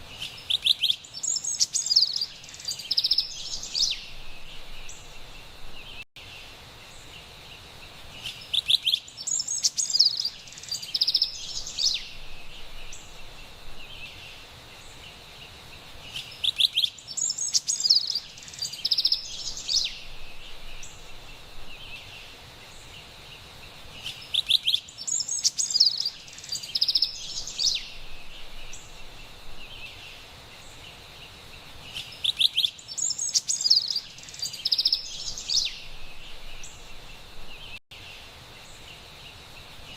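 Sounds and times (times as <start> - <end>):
wren singing: 0.0 - 6.0, 8.2 - 15.2, 16.0 - 23.0, 23.9 - 30.9, 31.8 - 39.9
forest ambience hiss: 0.0 - 39.9.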